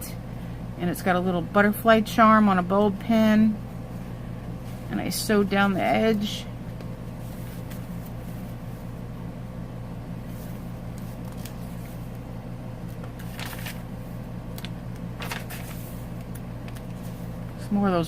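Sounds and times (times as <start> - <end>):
paper pages rustling: 7.1 - 8.6, 10.3 - 12.2, 12.8 - 17.4.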